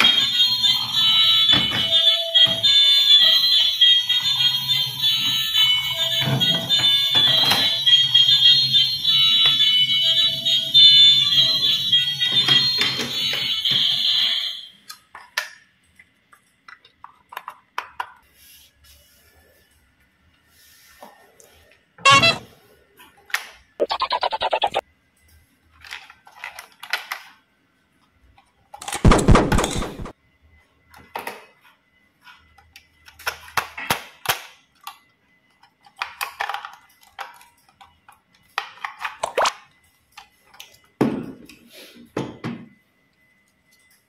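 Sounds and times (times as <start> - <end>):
loud pitched toy sound: 22.1 - 22.4, 23.8 - 24.8.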